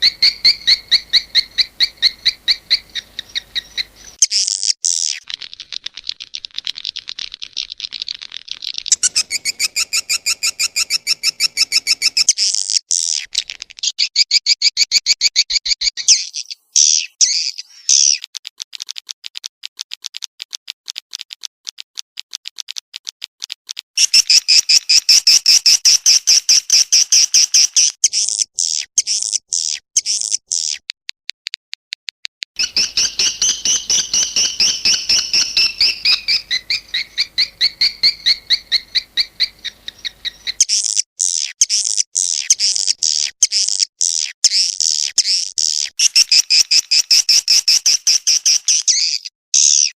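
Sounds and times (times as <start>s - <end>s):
swiftlets twittering chirps: 0.0s - 5.7s, 8.7s - 12.4s, 24.0s - 30.7s, 32.6s - 49.9s.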